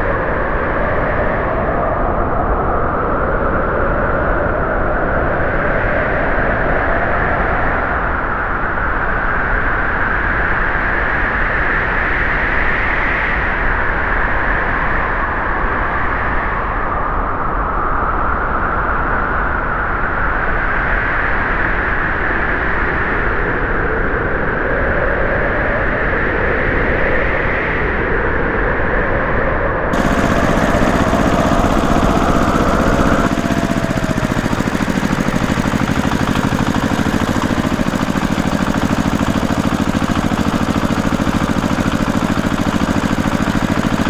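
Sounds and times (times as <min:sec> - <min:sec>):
small model tractor motor running: 0:30.0 - 0:44.0.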